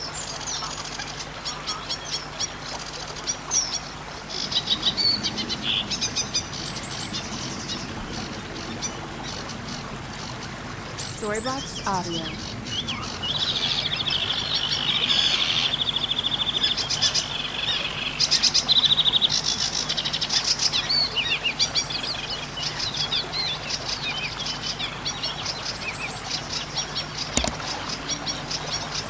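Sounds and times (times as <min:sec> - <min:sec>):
sharp click: 0:27.4 - 0:27.6.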